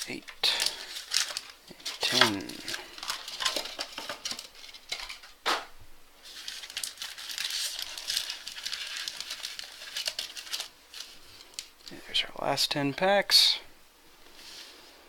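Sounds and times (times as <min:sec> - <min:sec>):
foil wrappers crinkling: 0:00.0 - 0:05.4, 0:06.2 - 0:12.0.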